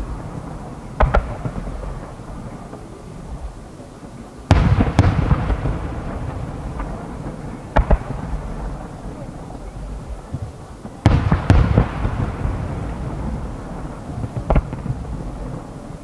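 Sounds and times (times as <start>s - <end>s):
distant firework shells bursting: 0.0s - 16.0s.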